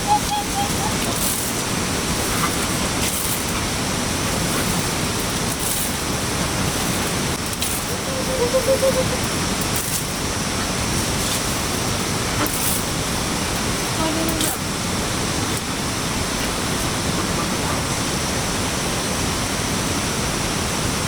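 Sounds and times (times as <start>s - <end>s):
brief pitched sound: 0.0s - 1.1s
water rushing: 0.0s - 21.0s.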